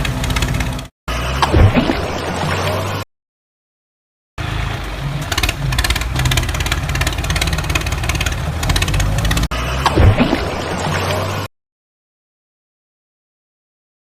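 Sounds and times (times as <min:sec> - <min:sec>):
engine running with ticking rhythm: 0:00.0 - 0:03.0, 0:04.4 - 0:11.5.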